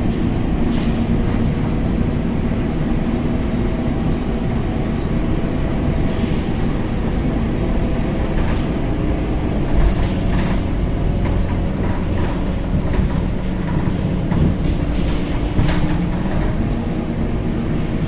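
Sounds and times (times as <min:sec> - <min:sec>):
bus bump: 0:00.0 - 0:04.8, 0:05.4 - 0:18.0
bus engine and road rumble: 0:00.0 - 0:18.0.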